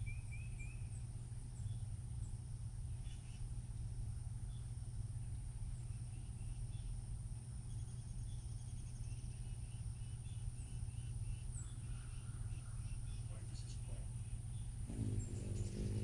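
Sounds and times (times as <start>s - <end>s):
steady low hum: 0.0s - 16.0s
small bird chirps: 7.6s - 16.0s
high insect drone: 14.8s - 16.0s.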